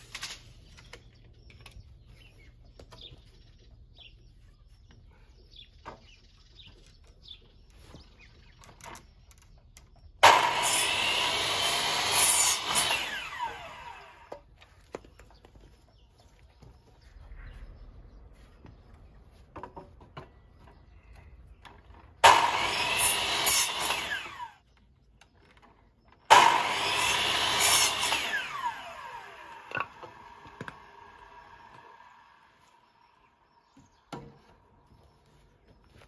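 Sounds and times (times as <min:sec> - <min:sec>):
power saw cutting timber: 0:10.2 - 0:14.4, 0:22.2 - 0:24.6, 0:26.3 - 0:32.8.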